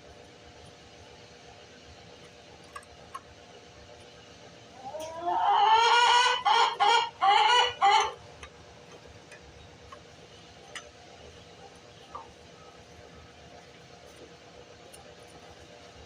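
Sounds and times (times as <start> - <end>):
loud animal call: 4.8 - 8.2.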